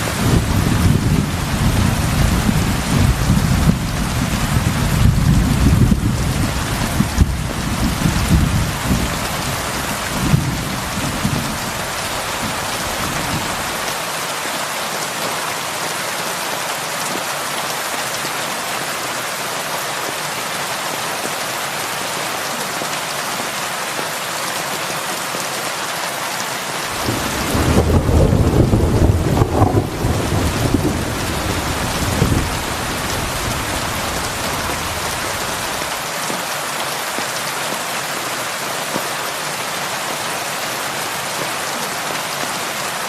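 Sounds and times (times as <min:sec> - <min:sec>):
thunder rumbling: 0:00.0 - 0:13.8, 0:27.0 - 0:35.9
heavy rain falling: 0:00.0 - 0:43.0.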